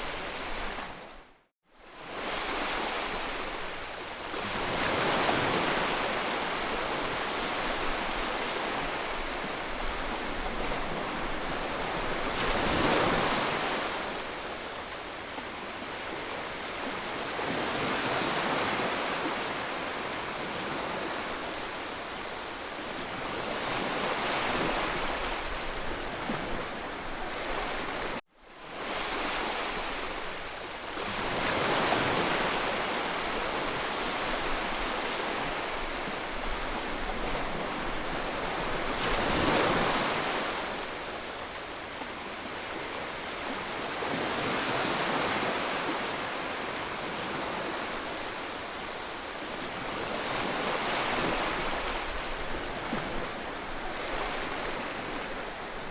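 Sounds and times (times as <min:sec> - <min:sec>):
sea waves breaking on shore: 0:00.0 - 0:55.9.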